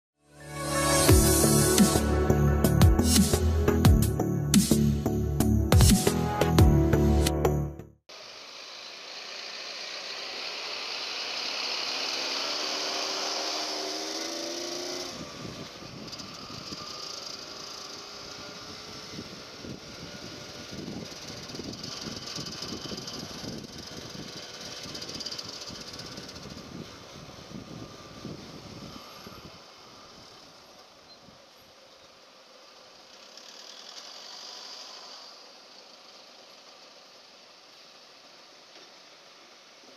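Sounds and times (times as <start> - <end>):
two-stroke motorcycle engine: 8.1 - 39.9
wind and road noise: 10.0 - 39.9.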